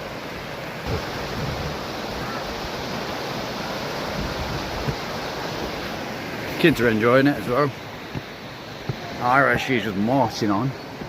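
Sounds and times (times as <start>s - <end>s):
river rushing: 0.0s - 11.0s
wind on microphone: 0.8s - 2.7s.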